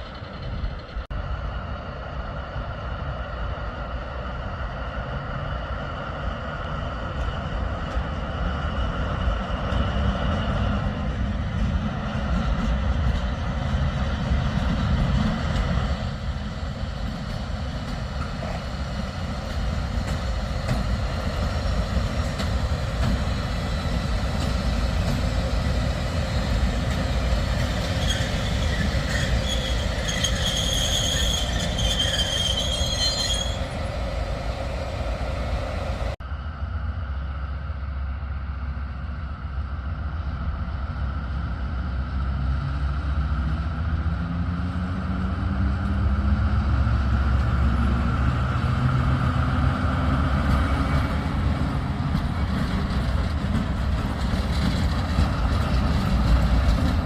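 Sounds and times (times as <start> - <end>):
train rumbling on rails: 0.0 - 57.0
high-pitched metal squeal: 27.8 - 33.9.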